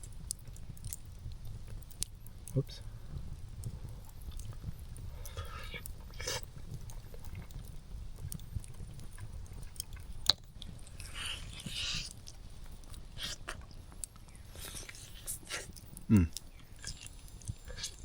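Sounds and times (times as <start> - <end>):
person chewing and biting: 9.6 - 13.7, 14.3 - 18.0.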